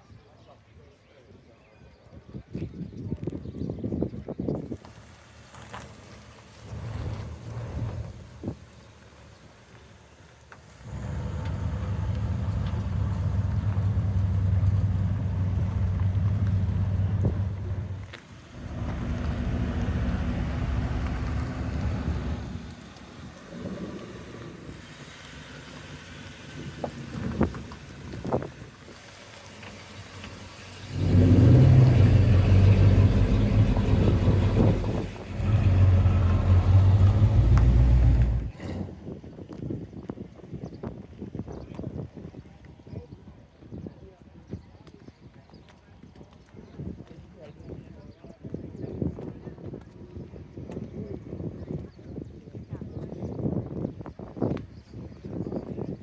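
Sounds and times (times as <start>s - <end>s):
car engine running: 5.5s - 9.0s, 9.6s - 38.5s.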